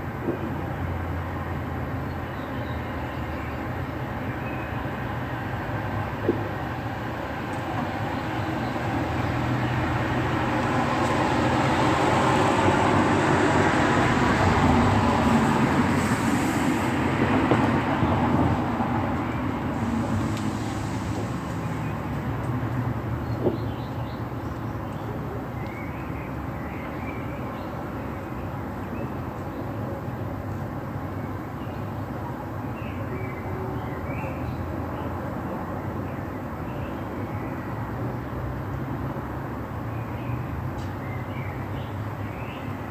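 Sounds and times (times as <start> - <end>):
distant traffic rumble: 0.0 - 42.9
light rain hiss: 19.8 - 21.8.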